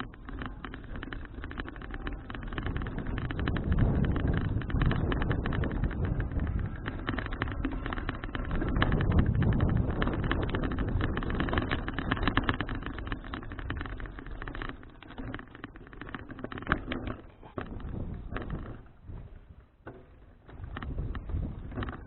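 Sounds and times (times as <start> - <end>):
wind on microphone: 0.0 - 14.6, 17.5 - 19.6, 20.5 - 22.0
bicycle rattling and knocking: 0.0 - 22.0.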